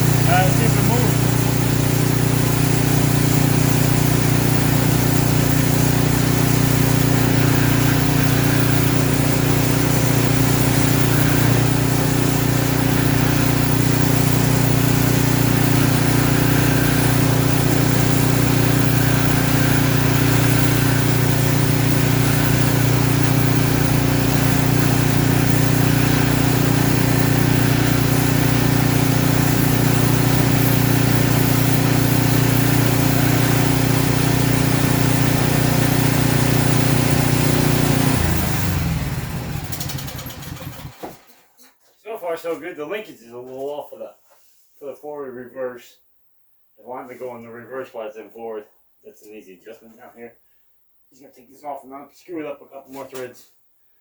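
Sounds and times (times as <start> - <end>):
snowblower engine running: 0.0 - 41.4.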